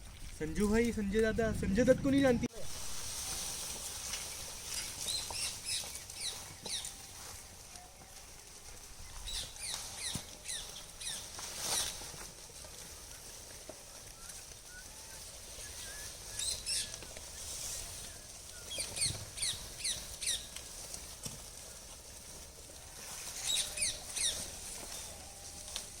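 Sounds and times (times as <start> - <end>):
bird chirping: 23.4 - 25.6.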